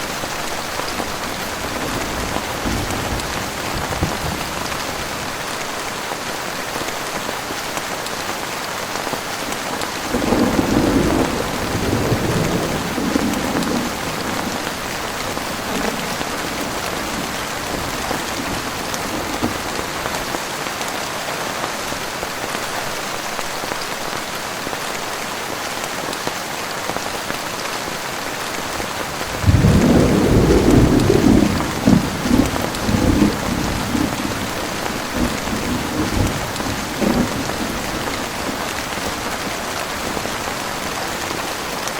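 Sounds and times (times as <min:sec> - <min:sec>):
heavy rain falling: 0:00.0 - 0:41.9
thunder rumbling: 0:00.4 - 0:05.4, 0:10.0 - 0:20.2, 0:29.3 - 0:40.9.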